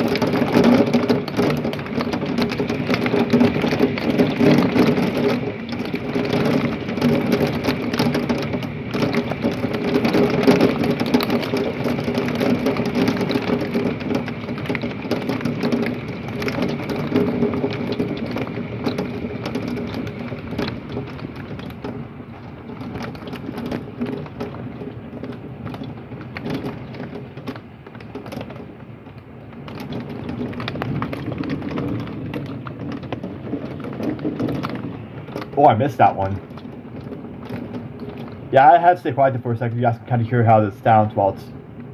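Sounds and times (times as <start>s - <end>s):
heavy rain pelting a window: 0.0s - 41.9s
raindrops ticking on glass: 0.0s - 41.9s.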